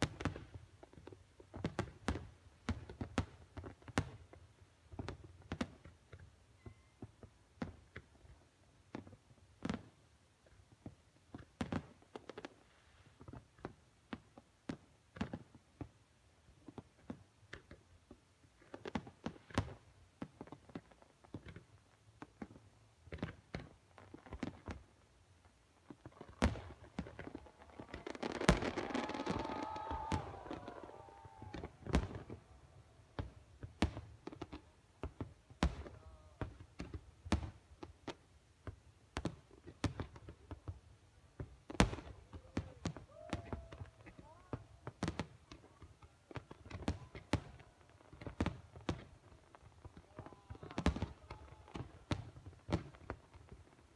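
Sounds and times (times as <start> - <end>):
distant fireworks bursting: 25.8 - 53.9.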